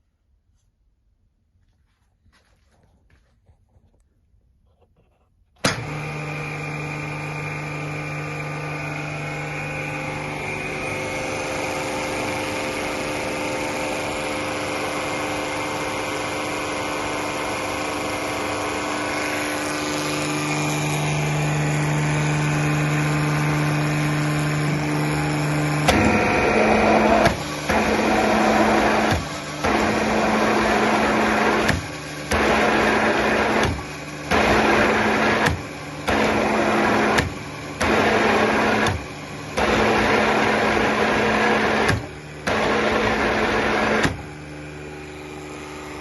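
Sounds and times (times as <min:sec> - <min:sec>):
plunger pump motor whining hum: 0:05.6 - 0:46.0.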